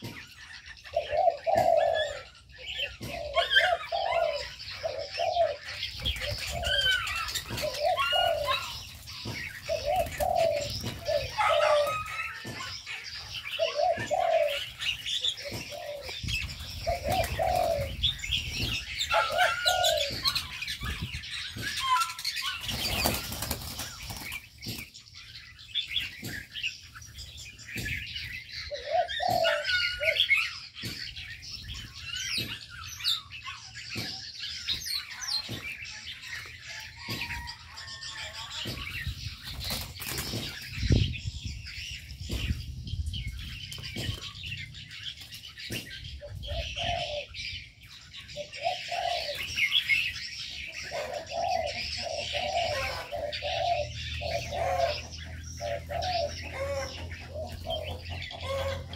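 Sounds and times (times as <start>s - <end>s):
doves cooing: 0.0s - 41.1s, 43.2s - 58.9s
small birds chirping: 0.0s - 58.9s
wings fluttering: 14.9s - 24.9s, 38.7s - 40.9s.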